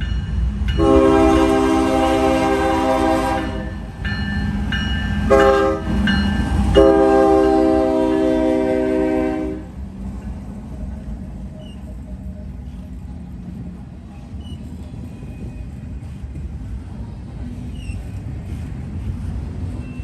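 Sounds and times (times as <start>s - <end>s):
passing train rumble: 0.0s - 20.0s
locomotive air horn chord: 0.8s - 3.8s, 5.3s - 6.0s, 6.7s - 9.7s
faint train squeals: 2.8s - 20.0s.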